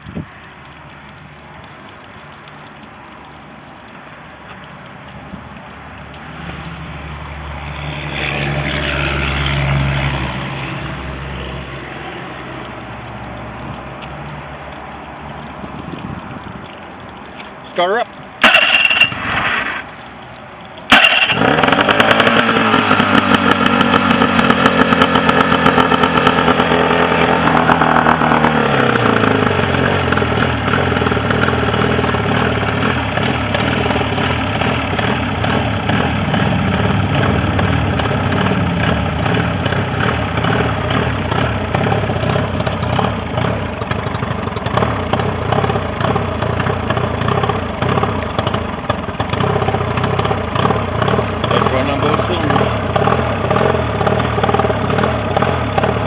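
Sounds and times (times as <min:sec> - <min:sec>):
outboard motor idling: 0:00.0 - 0:56.0.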